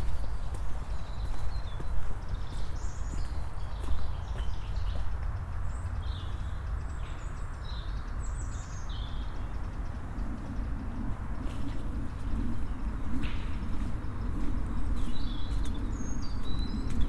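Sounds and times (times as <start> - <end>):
footsteps on a path: 0.0 - 5.2, 13.2 - 17.0.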